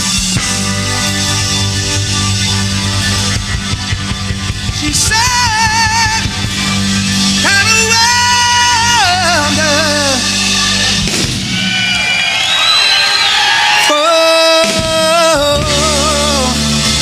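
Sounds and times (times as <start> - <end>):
high lead guitar note with vibrato: 0.0 - 12.2
live rock band playing: 0.0 - 17.0.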